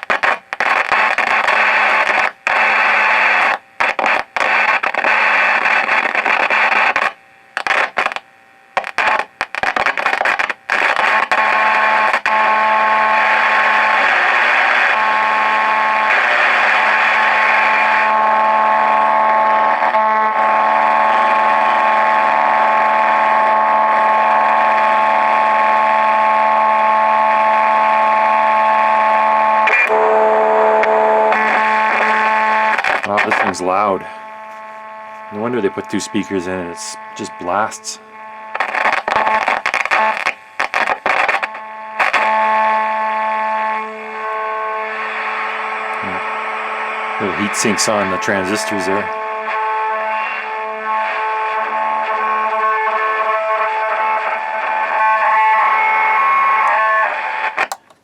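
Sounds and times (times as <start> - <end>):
radio static hissing: 0.0 - 58.0
whistling radio tones: 12.7 - 57.6.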